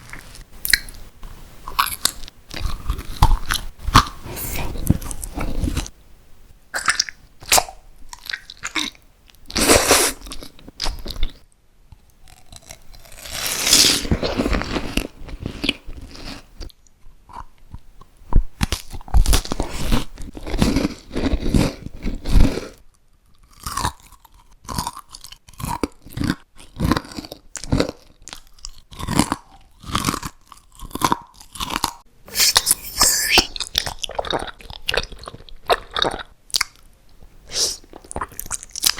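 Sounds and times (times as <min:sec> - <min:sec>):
crunchy bites and chewing: 0:01.6 - 0:05.9, 0:12.2 - 0:16.7, 0:17.3 - 0:36.9, 0:37.5 - 0:38.9.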